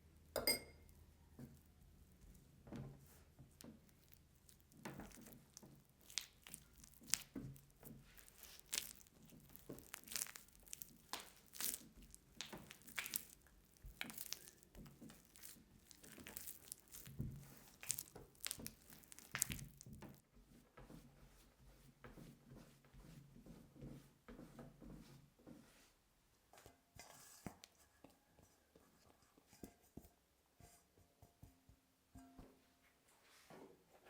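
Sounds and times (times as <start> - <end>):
crinkling and rustling: 1.4 - 20.3.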